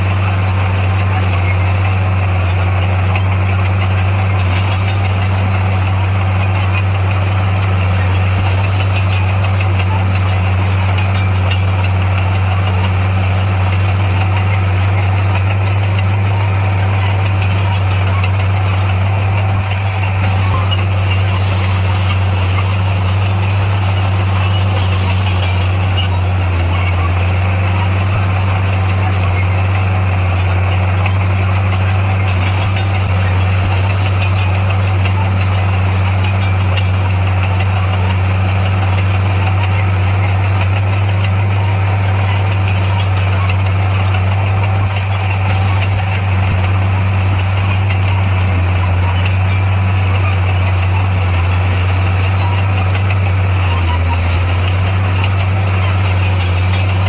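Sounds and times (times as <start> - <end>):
diesel engine low drone: 0.0 - 57.0.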